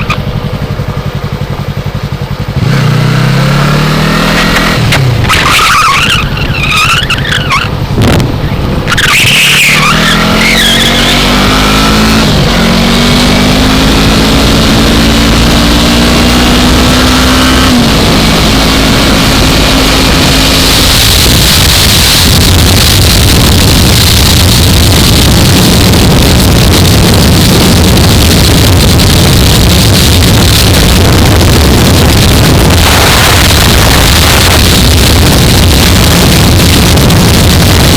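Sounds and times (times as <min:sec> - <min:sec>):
motorcycle engine accelerating: 0:00.0 - 0:37.9
wind rush over microphone: 0:07.6 - 0:09.5, 0:10.2 - 0:37.9.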